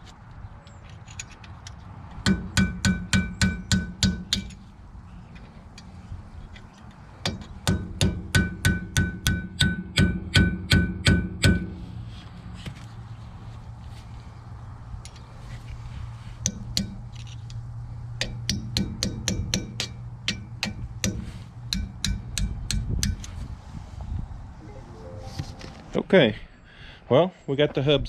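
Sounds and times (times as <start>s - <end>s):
hammer striking metal chisel: 2.2s - 4.6s, 7.2s - 11.7s, 18.2s - 23.3s.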